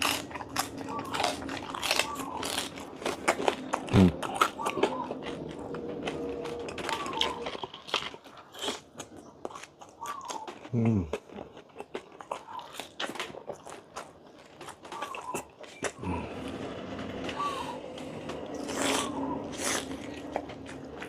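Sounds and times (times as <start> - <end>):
crunchy food being chewed: 0.0 - 21.0
steady low hum: 15.8 - 21.0.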